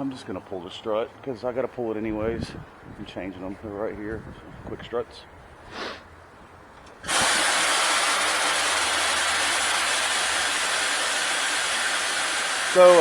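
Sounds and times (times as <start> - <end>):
rushing air hiss: 5.7 - 6.0, 7.0 - 13.0.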